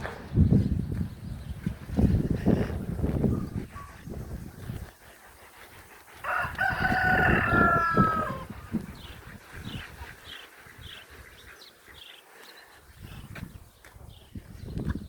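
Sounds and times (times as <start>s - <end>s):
small birds chirping: 0.0s - 15.0s
rooster crowing: 6.2s - 8.5s.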